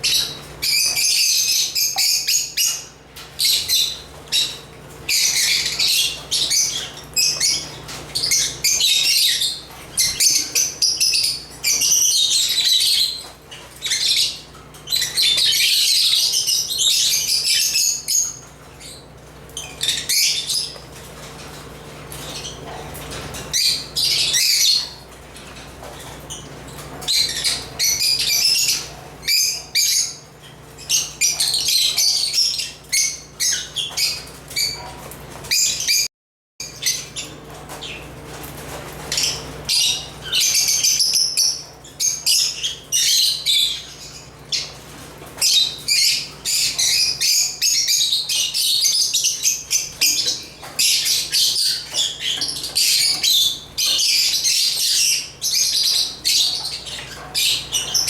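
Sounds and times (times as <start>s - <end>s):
lovebirds chirping: 45.4s - 58.0s.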